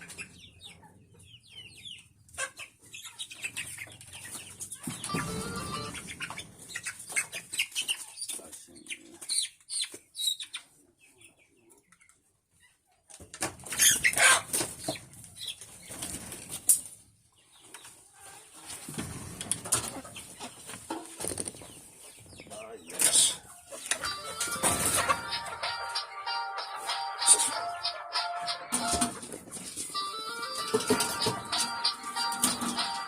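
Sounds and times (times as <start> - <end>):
chickens flapping wings: 13.4 - 16.8.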